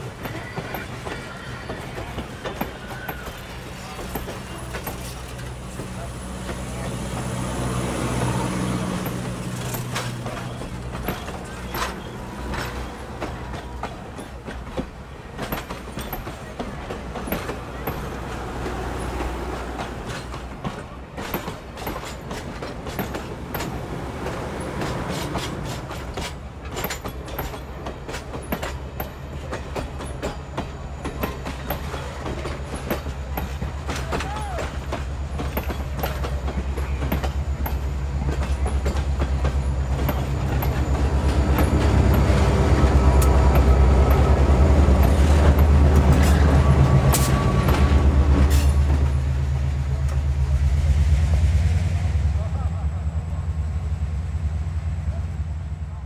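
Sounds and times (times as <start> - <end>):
train wheels clicking over joints: 0.0 - 51.9
low engine drone: 49.4 - 56.0.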